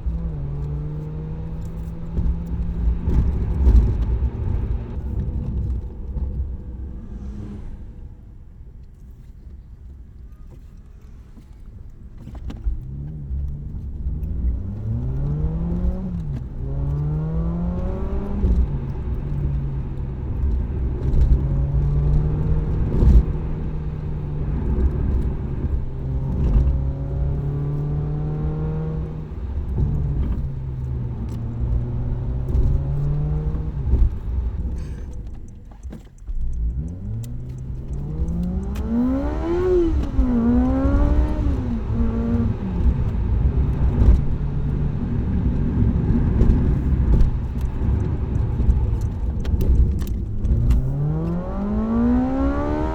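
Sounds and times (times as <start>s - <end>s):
car exhaust revving: 36.6s - 52.9s.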